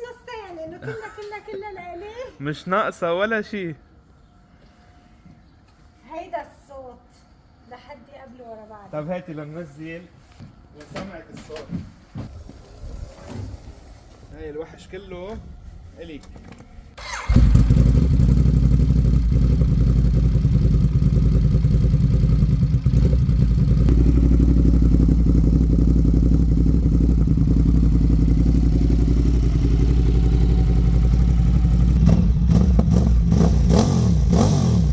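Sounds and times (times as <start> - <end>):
motorcycle throttle blips: 16.4 - 34.9
motorcycle engine idling: 17.0 - 34.9.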